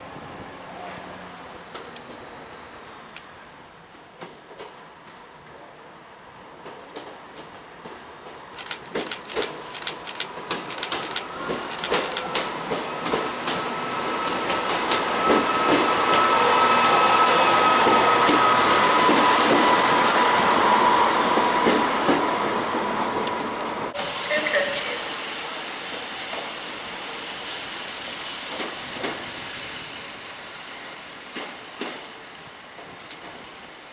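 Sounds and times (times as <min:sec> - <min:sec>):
train rumbling: 0:06.4 - 0:33.9
train wheels clicking over rail joints: 0:06.6 - 0:16.3, 0:28.5 - 0:33.9.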